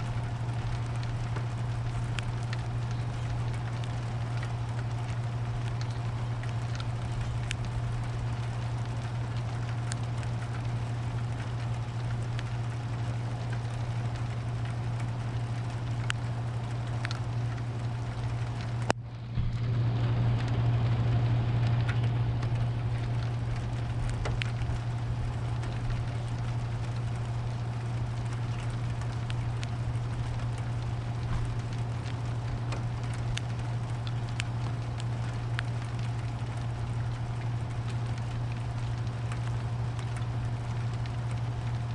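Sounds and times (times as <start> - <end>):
low steady hum: 0.0 - 41.9
rain falling: 0.0 - 41.9
drop ticks: 13.4 - 19.0, 21.7 - 41.8.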